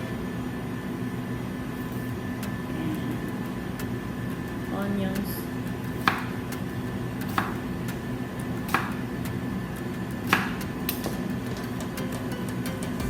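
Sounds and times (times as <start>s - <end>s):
knife cutting on cutting board: 7.2s - 7.6s.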